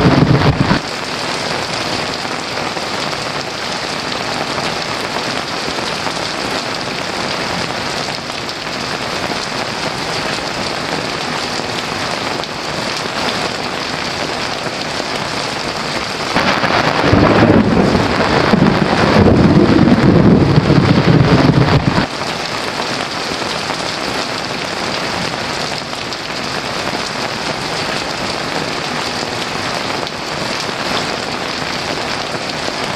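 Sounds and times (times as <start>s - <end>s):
thunder rumbling: 0.0s - 2.2s, 15.6s - 22.9s
heavy rain: 0.0s - 32.9s.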